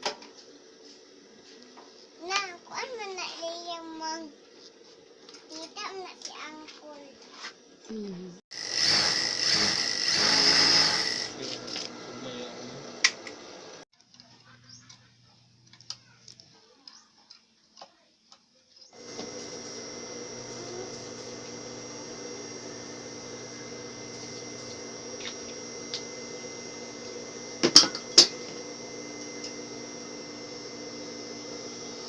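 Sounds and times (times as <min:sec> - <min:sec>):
sewing machine motor humming: 0:08.5 - 0:13.8, 0:19.0 - 0:32.0.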